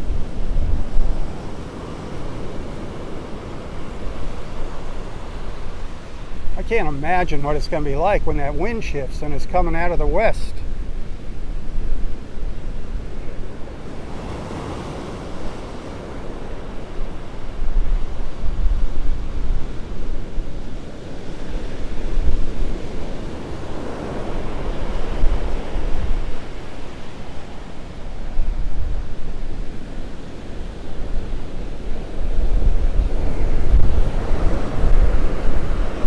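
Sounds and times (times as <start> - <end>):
surf breaking on beach: 0.0 - 36.0
wind buffeting microphone: 0.0 - 36.0.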